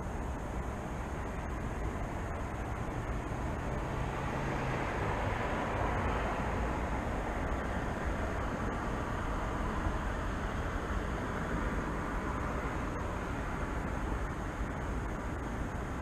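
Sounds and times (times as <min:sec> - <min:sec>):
low engine hum: 0:00.0 - 0:16.0
road traffic noise: 0:00.0 - 0:16.0
vehicle passing: 0:02.8 - 0:11.1.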